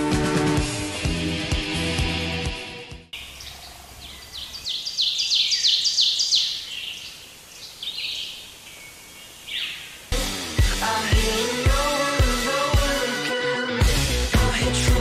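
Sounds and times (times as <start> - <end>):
music: 0.0 - 3.2, 10.1 - 15.0
songbird singing: 3.2 - 10.2.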